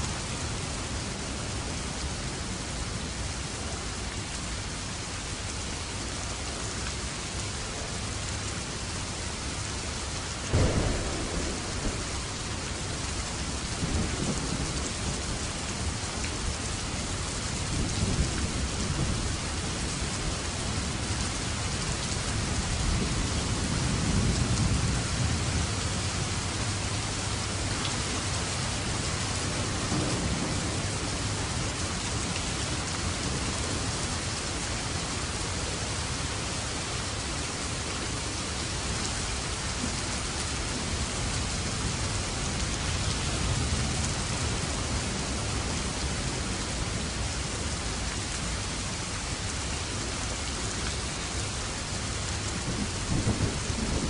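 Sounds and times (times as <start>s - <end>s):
heavy rain falling: 0.0s - 54.0s
thunder rumbling: 10.4s - 21.0s, 52.4s - 54.0s.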